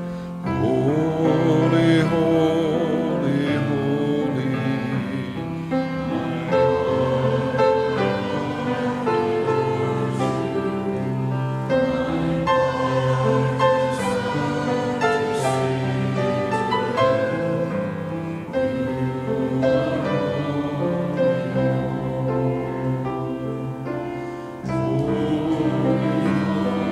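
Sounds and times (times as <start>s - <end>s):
choir singing a hymn: 0.0s - 26.9s
instrumental accompaniment: 0.0s - 26.9s.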